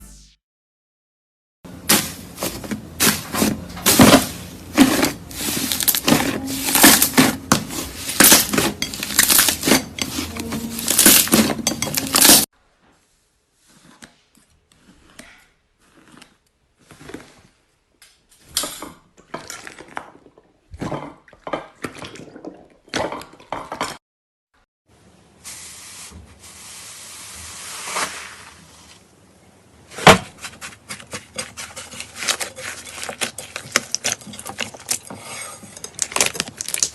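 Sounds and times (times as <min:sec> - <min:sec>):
slime crackling and popping: 0:36.0 - 0:36.9.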